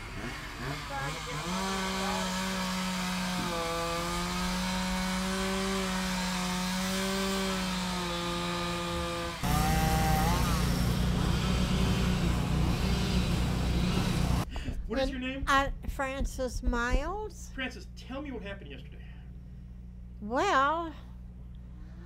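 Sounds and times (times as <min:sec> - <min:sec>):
small engine running: 0:00.0 - 0:14.5.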